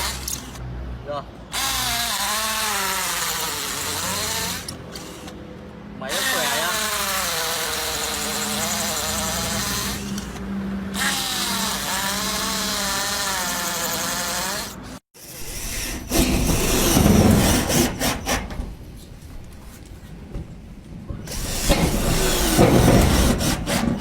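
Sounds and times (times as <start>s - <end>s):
cordless drill whining: 1.5s - 5.4s, 6.1s - 15.0s.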